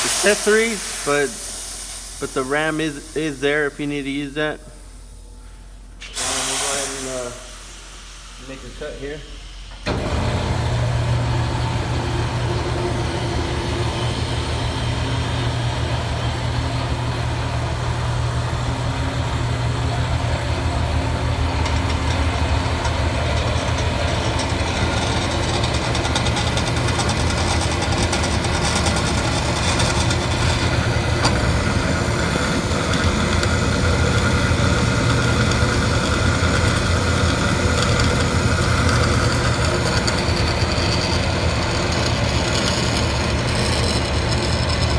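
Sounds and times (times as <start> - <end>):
bandsaw motor hum: 9.8 - 44.9
bandsaw blade cutting: 22.9 - 32.3.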